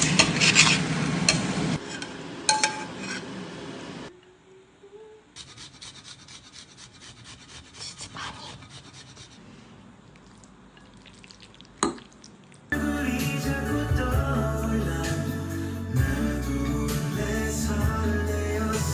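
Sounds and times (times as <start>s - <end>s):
utensil scraping cookware: 0.0s - 3.4s
music: 12.8s - 18.9s.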